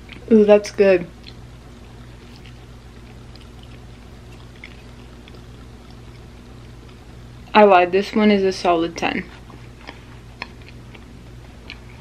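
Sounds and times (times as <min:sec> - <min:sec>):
faint chewing mouth sounds: 0:00.0 - 0:00.3, 0:01.1 - 0:07.5, 0:09.3 - 0:12.0
low electrical hum and hiss: 0:00.0 - 0:12.0.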